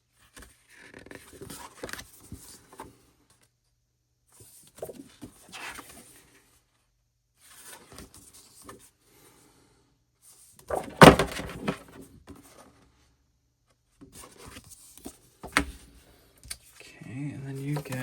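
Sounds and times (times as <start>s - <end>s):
paper packaging rustling: 10.7s - 11.8s.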